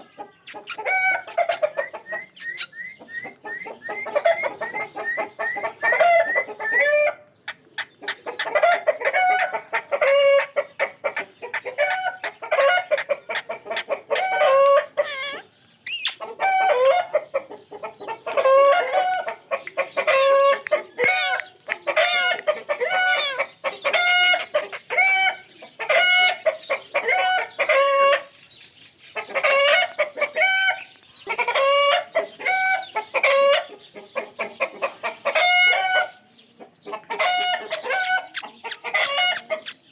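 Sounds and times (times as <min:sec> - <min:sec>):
parrot chattering calls: 0:00.4 - 0:07.0, 0:37.2 - 0:39.9.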